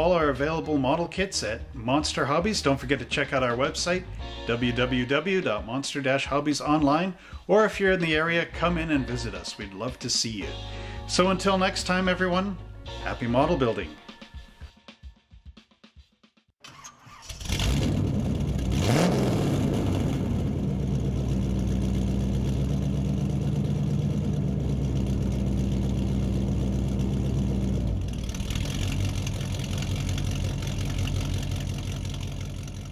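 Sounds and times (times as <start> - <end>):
car engine starting and idling: 16.6 - 32.9.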